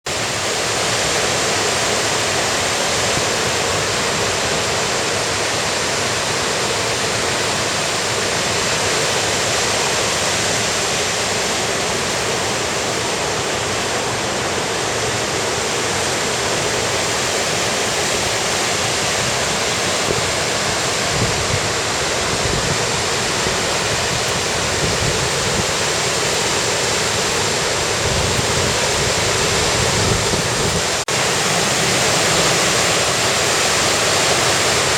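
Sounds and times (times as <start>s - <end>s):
flooded river water rushing: 0.1s - 34.9s.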